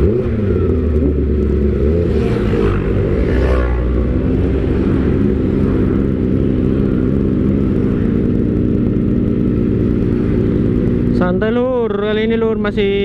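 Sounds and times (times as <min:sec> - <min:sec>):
motorcycle engine idling: 0:05.1 - 0:13.0.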